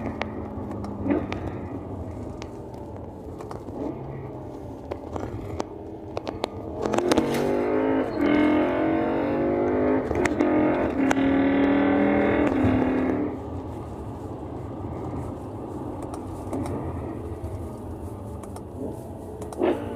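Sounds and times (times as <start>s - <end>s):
sharp exhaust cracks: 0.0s - 13.4s.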